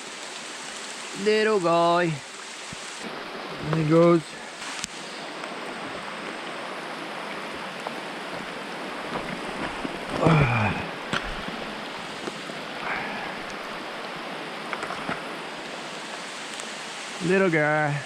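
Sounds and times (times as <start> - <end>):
mountain stream rushing: 0.0 - 18.0
rain falling: 0.0 - 18.0.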